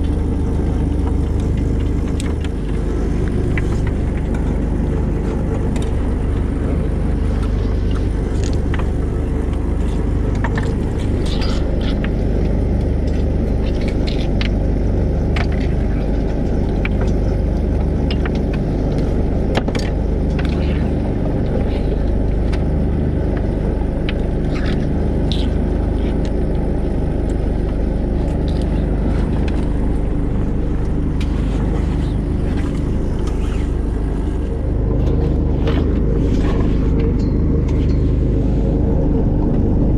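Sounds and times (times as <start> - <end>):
boat engine rumbling: 0.0 - 39.9.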